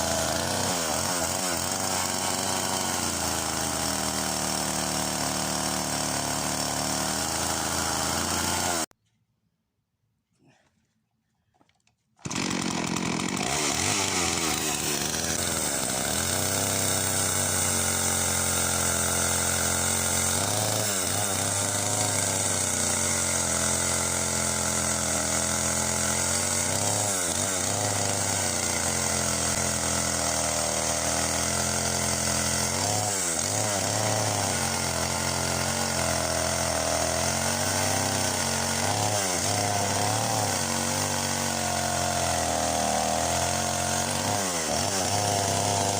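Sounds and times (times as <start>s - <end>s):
chainsaw cutting branches: 0.0s - 8.9s, 12.2s - 45.9s.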